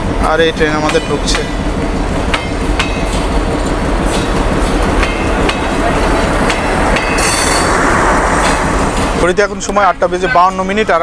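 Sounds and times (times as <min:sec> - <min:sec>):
diesel engine rumble: 0:00.0 - 0:11.0.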